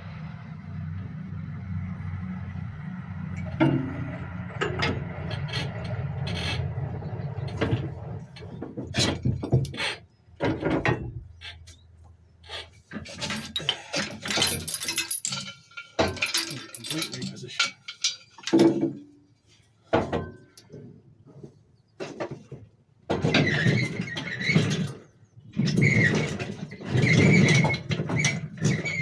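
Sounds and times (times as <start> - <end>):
hand tools clicking on metal: 13.1 - 18.6.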